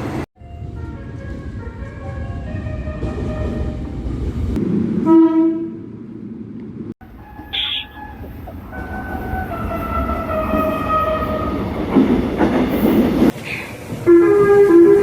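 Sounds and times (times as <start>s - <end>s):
subway train wheel and track noise: 0.0s - 15.0s
train horn: 0.6s - 3.9s, 5.0s - 5.9s, 7.0s - 11.7s, 14.0s - 15.0s.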